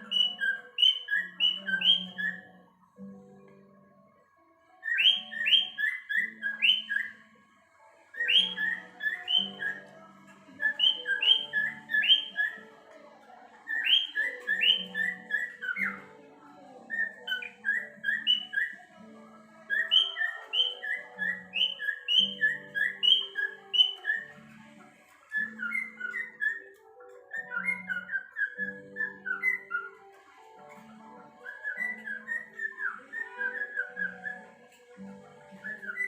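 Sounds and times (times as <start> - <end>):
cockatiel whistling chirps: 0.0 - 2.5, 4.8 - 7.2, 8.2 - 9.9, 10.6 - 12.6, 13.7 - 16.1, 16.9 - 18.9, 19.7 - 24.6, 25.3 - 30.2, 31.4 - 34.6, 35.6 - 36.0
plucked-string background music: 0.0 - 36.0.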